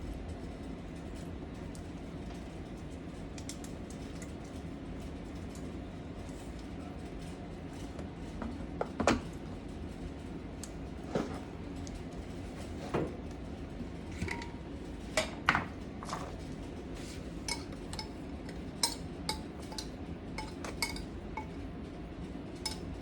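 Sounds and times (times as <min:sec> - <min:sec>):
low kitchen hum: 0:00.0 - 0:23.0
utensils or dishes clicking: 0:17.4 - 0:21.6, 0:22.6 - 0:22.9.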